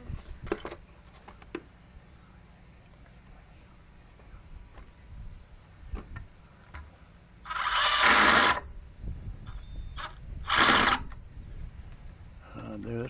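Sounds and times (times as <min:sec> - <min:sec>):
power drill drilling into wood: 0:07.5 - 0:08.7, 0:10.0 - 0:11.1.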